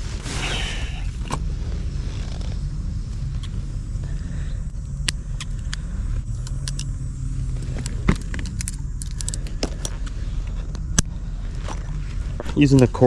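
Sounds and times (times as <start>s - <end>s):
rumble of motor traffic: 0.0s - 13.0s
vehicle engine: 0.0s - 13.0s
fishing gear clicking and rattling: 7.6s - 10.9s.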